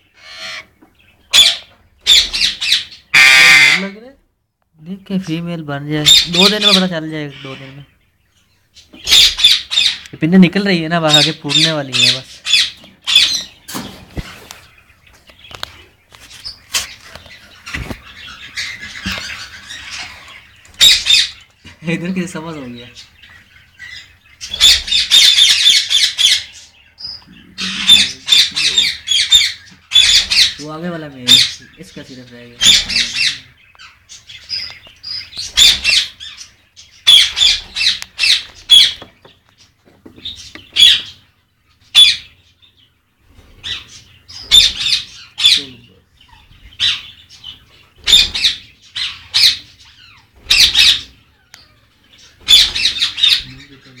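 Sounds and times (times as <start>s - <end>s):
parrot chirp: 0.0s - 3.9s, 6.1s - 10.1s, 11.1s - 13.6s, 17.5s - 21.5s, 23.0s - 30.6s, 32.6s - 39.1s, 40.2s - 42.8s, 43.6s - 54.0s.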